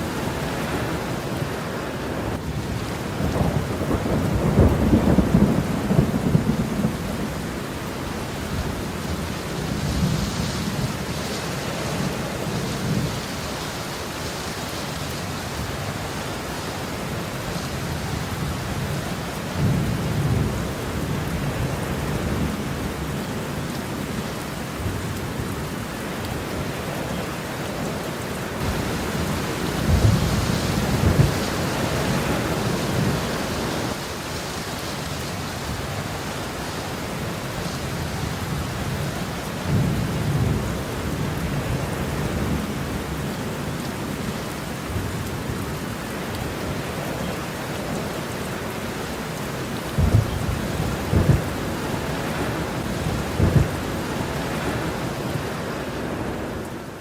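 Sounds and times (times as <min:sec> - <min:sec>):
steady rain falling: 0:00.0 - 0:57.0
thunder rumbling: 0:02.3 - 0:07.7, 0:28.6 - 0:34.2, 0:49.8 - 0:55.6.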